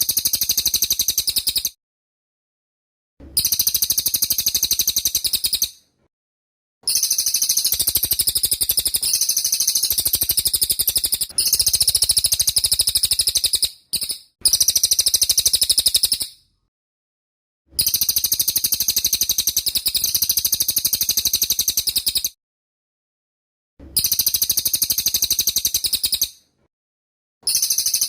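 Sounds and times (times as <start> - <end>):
songbird rattling trills: 6.9 - 16.3, 27.5 - 28.0.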